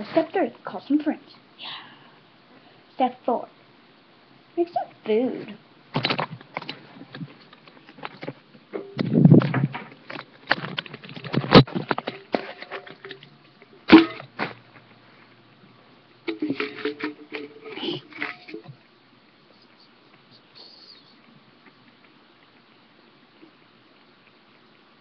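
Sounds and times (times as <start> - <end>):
food handling clicks and rustling: 5.9 - 14.9, 16.3 - 18.8.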